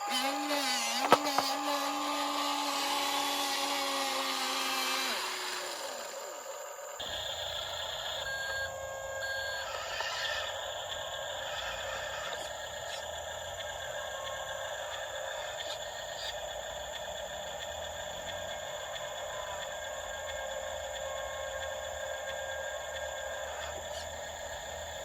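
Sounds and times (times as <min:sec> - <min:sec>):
small electric motor whining: 0:00.0 - 0:25.0.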